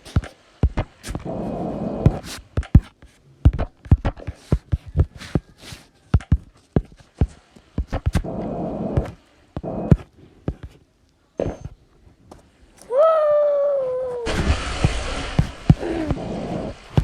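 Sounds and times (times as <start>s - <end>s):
sharp knocks and thuds: 0.0s - 1.3s, 2.0s - 5.5s, 6.2s - 10.8s
dense rustling noise: 14.2s - 17.0s.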